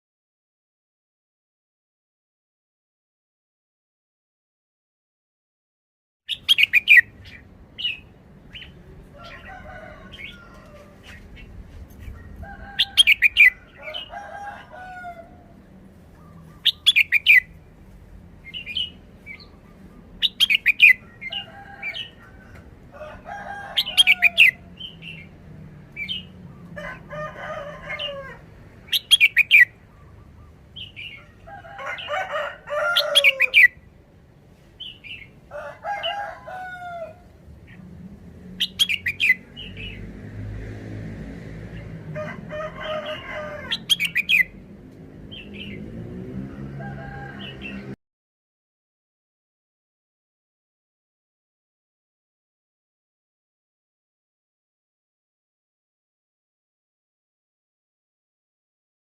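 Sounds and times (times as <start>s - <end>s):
bird chattering calls: 6.3s - 8.8s, 16.2s - 17.5s, 18.5s - 21.5s, 28.9s - 31.3s, 38.6s - 39.9s.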